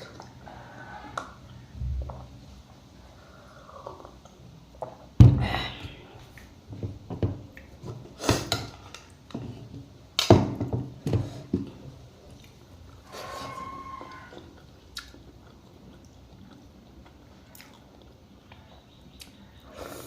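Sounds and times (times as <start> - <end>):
chewing and smacking: 14.1 - 19.4.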